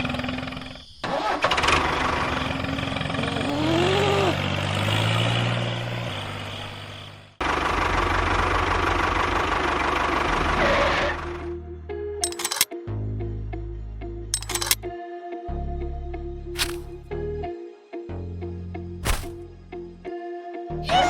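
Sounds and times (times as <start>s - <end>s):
engine running: 0.0s - 11.6s, 12.2s - 12.6s, 14.4s - 14.8s, 16.6s - 17.0s, 19.0s - 19.4s.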